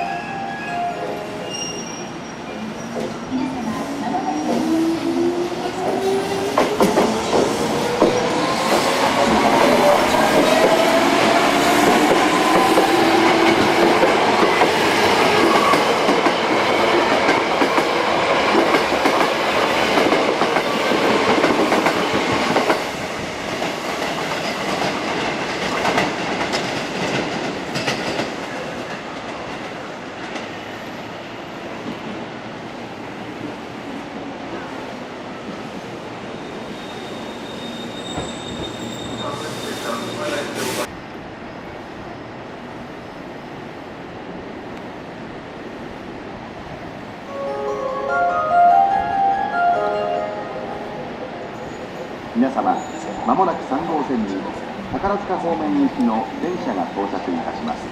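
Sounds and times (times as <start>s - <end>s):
train wheels clattering on rails: 5.8s - 30.9s.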